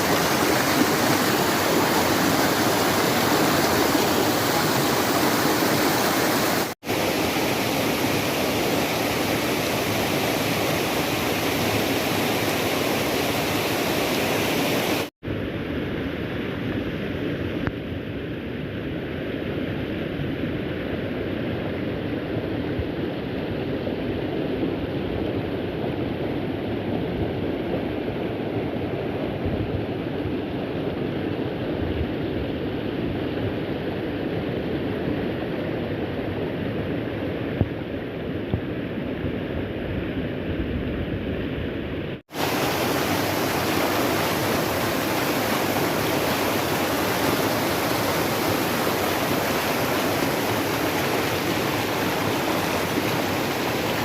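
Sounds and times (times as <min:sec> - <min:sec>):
waterfall rushing: 0:00.0 - 0:15.1, 0:42.3 - 0:54.0.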